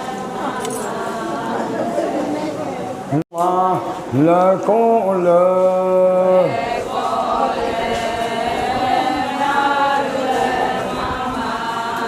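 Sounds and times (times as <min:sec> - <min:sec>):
group chanting in unison: 0:00.0 - 0:02.6, 0:06.0 - 0:12.0.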